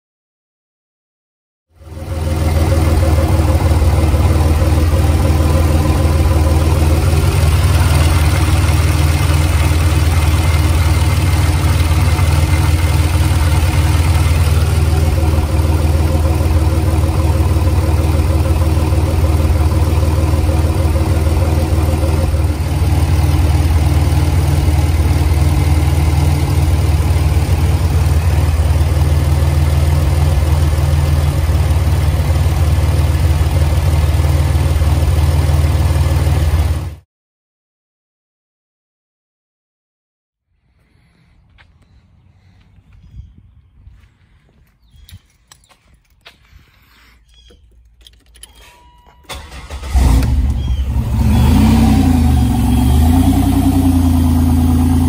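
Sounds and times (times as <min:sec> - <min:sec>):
car engine idling: 0:01.8 - 0:37.0, 0:49.3 - 0:55.0.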